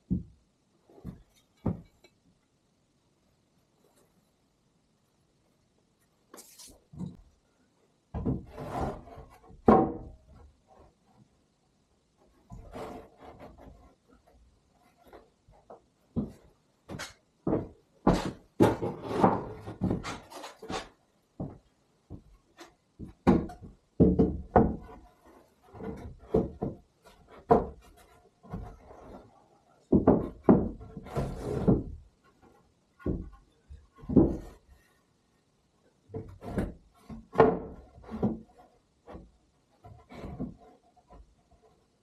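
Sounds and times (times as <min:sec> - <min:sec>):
irregular knocks and thuds: 0:00.0 - 0:02.1, 0:08.1 - 0:10.5, 0:15.1 - 0:29.2, 0:29.8 - 0:34.8, 0:36.1 - 0:41.8.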